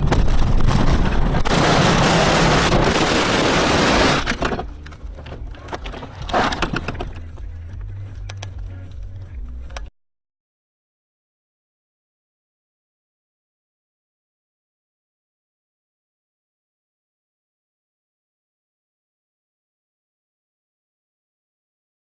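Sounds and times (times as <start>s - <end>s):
car crash: 0.0s - 4.7s
debris clattering: 0.0s - 7.3s.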